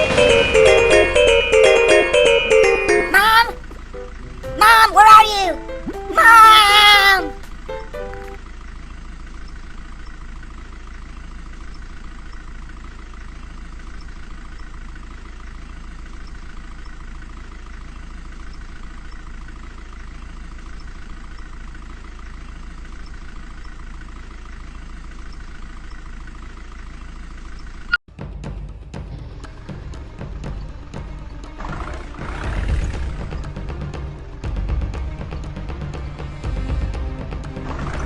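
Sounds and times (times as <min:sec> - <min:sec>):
road noise: 0:00.0 - 0:28.0, 0:28.9 - 0:38.0
vehicle engine rumble: 0:00.0 - 0:38.0.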